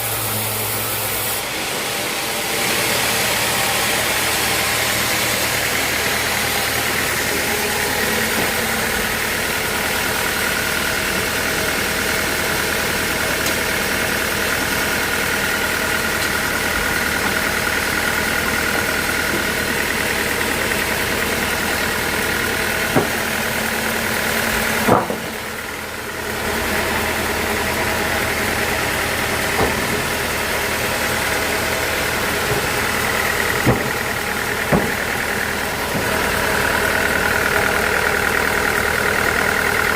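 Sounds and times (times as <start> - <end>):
sawmill machinery running: 0.0 - 39.9
sharp knocks: 33.6 - 35.1.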